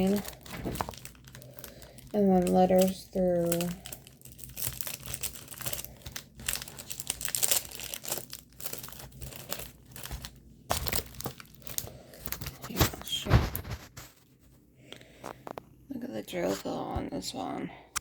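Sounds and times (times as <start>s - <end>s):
plastic packaging crinkling: 0.0s - 14.3s.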